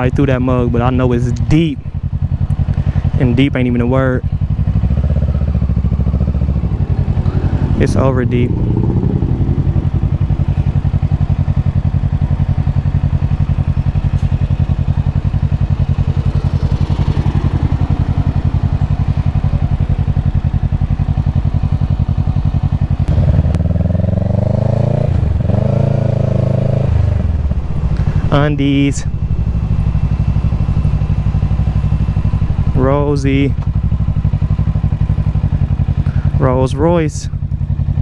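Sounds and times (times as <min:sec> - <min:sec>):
motorcycle engine running: 0:00.0 - 0:38.0
pitched sound with shifting tones: 0:05.5 - 0:10.8.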